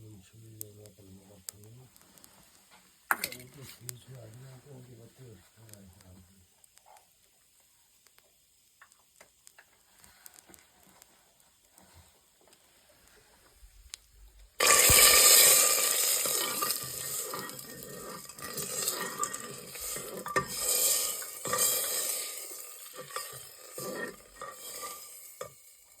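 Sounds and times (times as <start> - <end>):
food sizzling in hot oil: 14.6 - 26.0.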